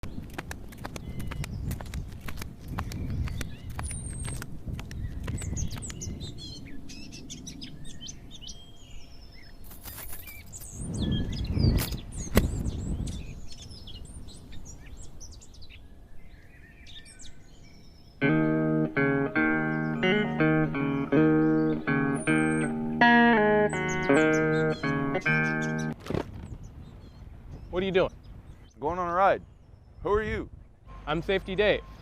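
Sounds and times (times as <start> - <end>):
sharp clicks: 0.0 - 6.1
small birds chirping: 0.0 - 32.0
guitar music: 18.2 - 26.0.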